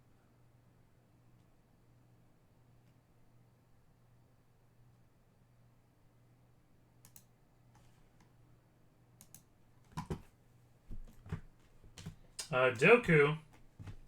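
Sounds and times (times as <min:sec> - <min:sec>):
faint steady hum: 0:00.0 - 0:14.0
sharp clicks: 0:07.0 - 0:07.3.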